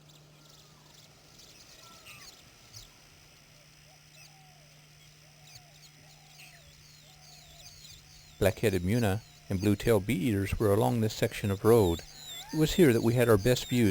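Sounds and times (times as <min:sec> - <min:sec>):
birds chirping: 0:00.0 - 0:13.9
steady low hum: 0:00.0 - 0:13.9
low slurred bird whistles: 0:12.0 - 0:13.9.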